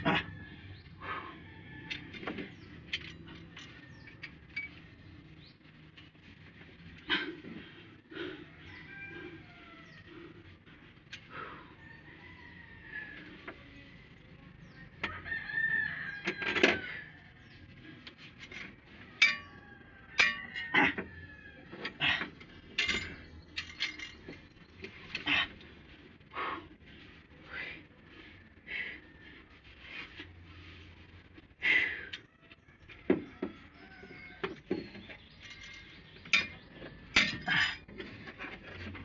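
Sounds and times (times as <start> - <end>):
rooster crowing: 0.0 - 2.3, 8.2 - 10.4, 11.3 - 13.5, 15.0 - 17.6, 19.1 - 22.1, 32.4 - 34.7
sharp metallic knocks and clinks: 18.5 - 21.0, 21.8 - 25.2, 34.4 - 38.1.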